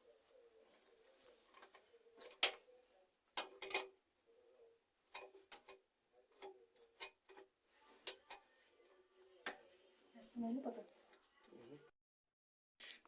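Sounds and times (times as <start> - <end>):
clicks and knocks on tap fittings: 3.4 - 4.0.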